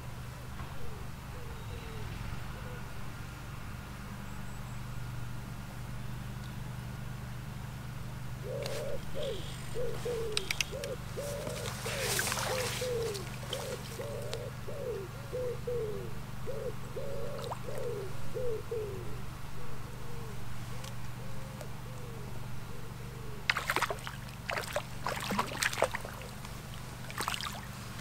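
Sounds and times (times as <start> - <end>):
bird low hooting: 0.0 - 3.3, 8.3 - 28.0
steady low hum: 0.0 - 28.0.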